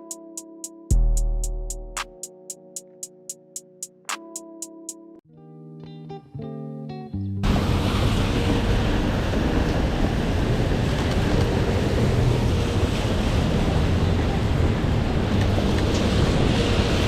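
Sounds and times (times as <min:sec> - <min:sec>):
wind and rain on microphone: 0:07.4 - 0:17.0.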